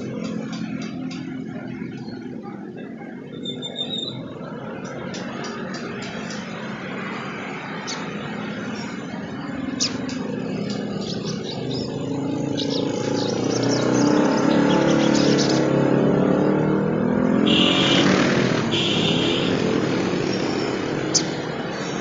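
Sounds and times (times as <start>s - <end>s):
vehicle engine running: 0.0s - 22.0s
high bird chirps: 3.3s - 15.8s, 20.2s - 22.0s.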